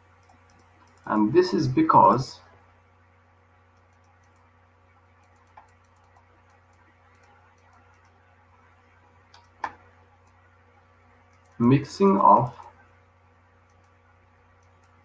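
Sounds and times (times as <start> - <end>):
low electrical hum: 0.0 - 15.0
faint clicks and taps: 0.2 - 1.1, 3.7 - 4.5, 5.2 - 10.5, 11.3 - 12.7, 13.6 - 14.0, 14.6 - 15.0.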